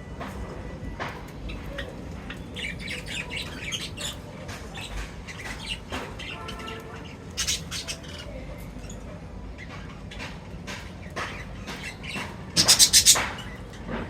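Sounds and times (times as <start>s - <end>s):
birds chirping: 0.0s - 14.0s
harsh bird squawk: 5.3s - 8.4s, 11.8s - 13.4s.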